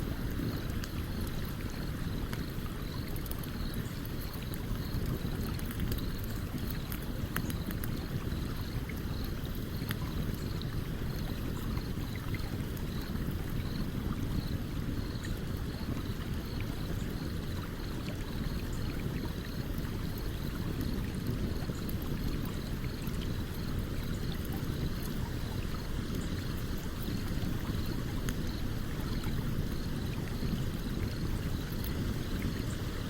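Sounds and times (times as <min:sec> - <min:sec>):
campfire crackling: 0:00.0 - 0:33.0.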